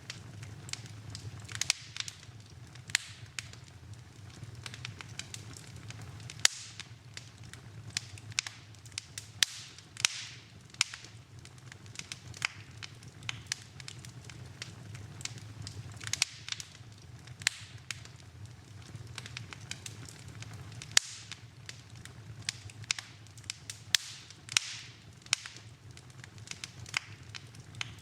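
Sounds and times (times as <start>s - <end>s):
fireplace fire crackling: 0.0s - 28.0s.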